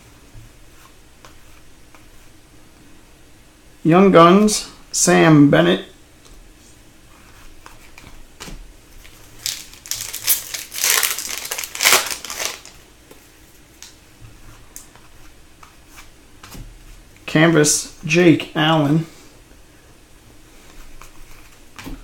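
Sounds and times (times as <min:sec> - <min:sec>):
card wrappers crinkling and rustling: 0:09.0 - 0:12.8.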